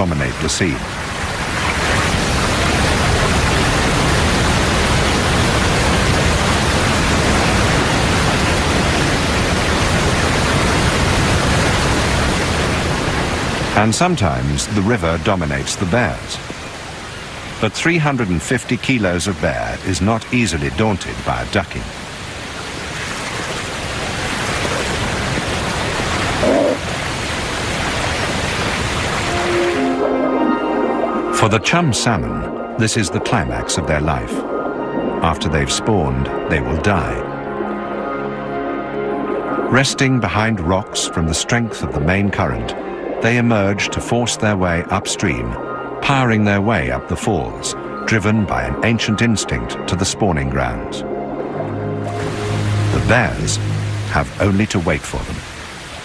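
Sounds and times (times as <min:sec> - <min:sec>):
fast river rushing over falls: 0:00.0 - 0:30.0, 0:52.0 - 0:56.0
short pitched sound: 0:51.6 - 0:54.9.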